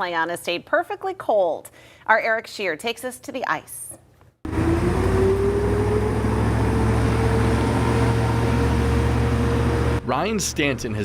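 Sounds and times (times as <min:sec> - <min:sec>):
ice resurfacer motor whine: 0:04.5 - 0:10.0.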